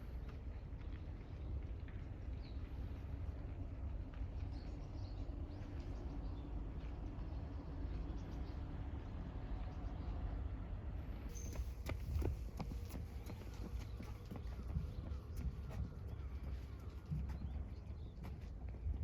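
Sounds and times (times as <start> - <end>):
wind rumbling on microphone: 11.4 - 19.0.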